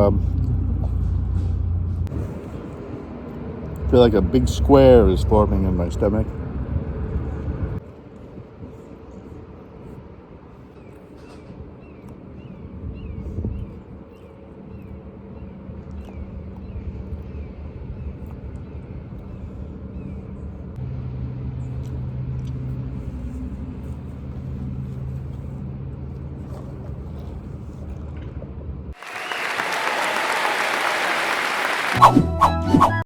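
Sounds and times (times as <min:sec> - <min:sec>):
applause: 0:29.0 - 0:32.6.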